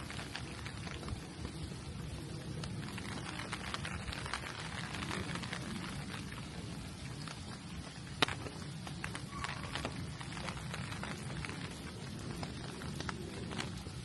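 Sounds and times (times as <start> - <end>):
low steady rumble: 0.0 - 14.0
rain falling: 0.0 - 14.0.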